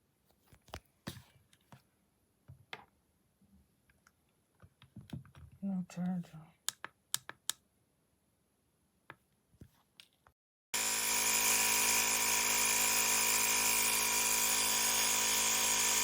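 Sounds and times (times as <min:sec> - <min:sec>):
air compressor buzzing drone: 0:10.8 - 0:16.0.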